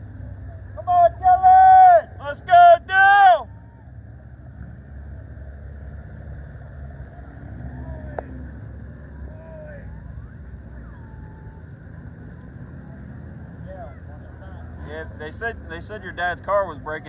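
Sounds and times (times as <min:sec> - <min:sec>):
race car engines rumbling: 0:00.0 - 0:17.0
faint distant voices: 0:06.7 - 0:17.0.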